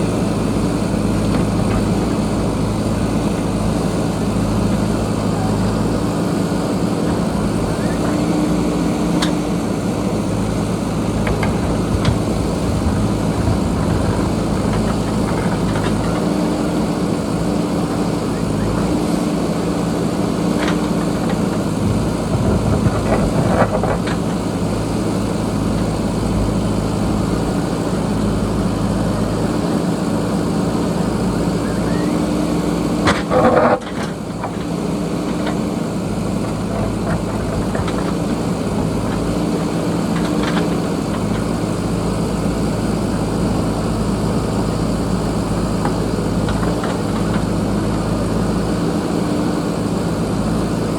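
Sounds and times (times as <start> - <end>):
diesel engine under load: 0.0 - 50.9
knocks and clatter: 11.1 - 16.3, 20.5 - 24.5, 36.4 - 41.6.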